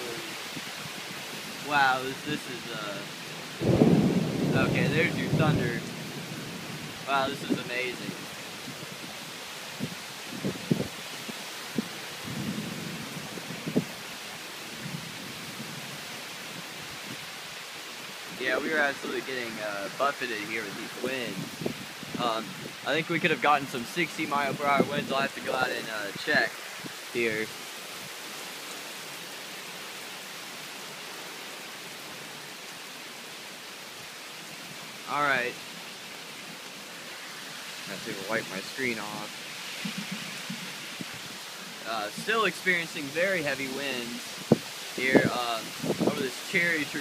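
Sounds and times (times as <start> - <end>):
heavy rain and wind hiss: 0.0 - 47.0
low thunder rumbling: 3.5 - 9.1.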